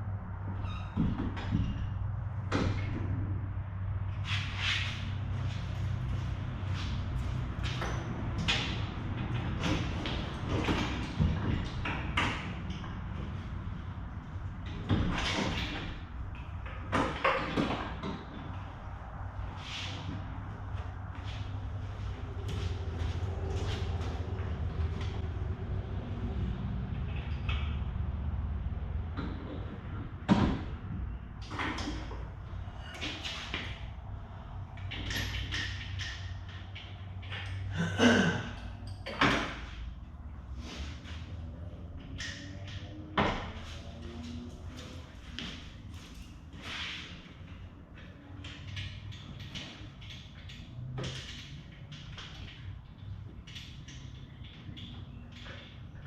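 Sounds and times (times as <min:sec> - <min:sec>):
knocks and thumps of work: 0:07.5 - 0:13.4, 0:14.6 - 0:18.6, 0:29.0 - 0:33.9, 0:34.8 - 0:39.9.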